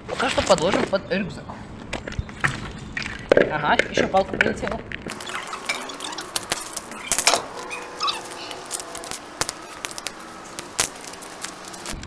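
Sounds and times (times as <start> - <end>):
dry sticks snapping: 5.1 - 12.0.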